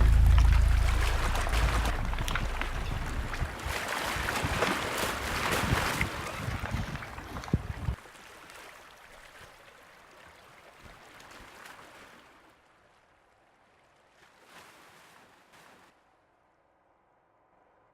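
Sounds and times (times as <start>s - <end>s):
water rushing and splashing: 0.0s - 9.2s
faint wash of water: 0.0s - 16.0s.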